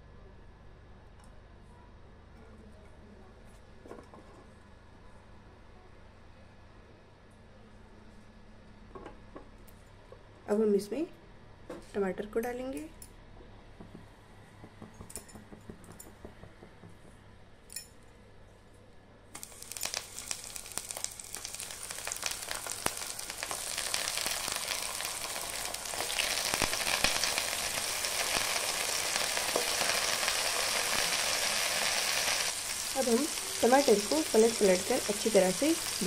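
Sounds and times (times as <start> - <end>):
tomatoes frying with crackling sizzle: 19.4 - 36.0.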